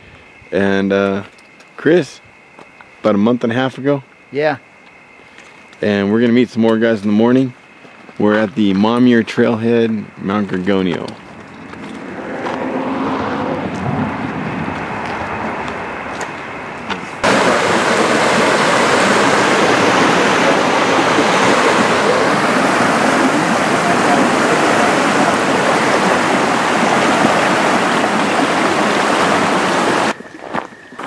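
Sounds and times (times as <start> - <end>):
creek water rushing: 17.2 - 30.2.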